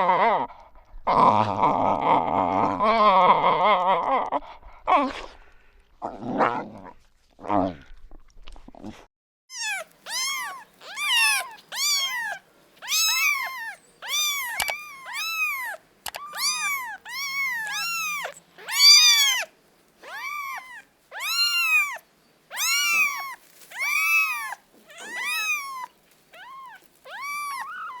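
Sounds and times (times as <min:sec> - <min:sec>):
kitten meowing: 0:09.5 - 0:28.0.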